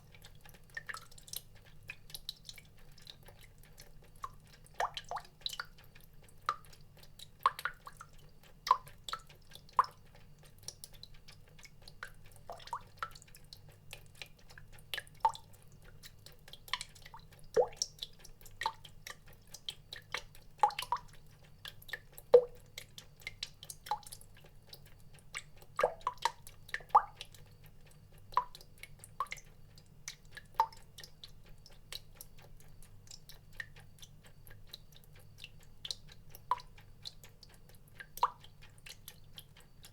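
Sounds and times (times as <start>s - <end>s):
water dripping: 0.0s - 39.9s.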